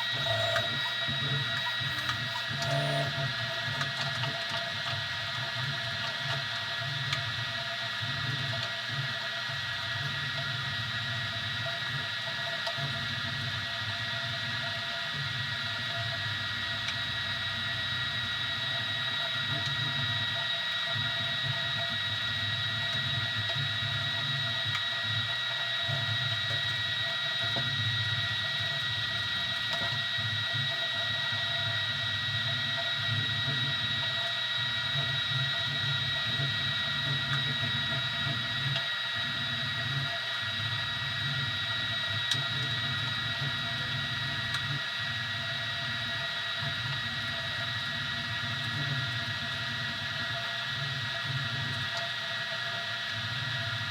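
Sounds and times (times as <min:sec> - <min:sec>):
printer low hum: 0:00.0 - 0:03.9
stepper motor whine: 0:00.0 - 0:04.3.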